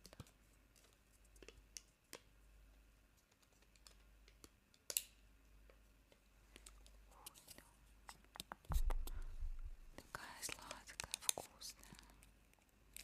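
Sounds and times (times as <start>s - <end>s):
soft taps and clicks: 8.4s - 11.5s.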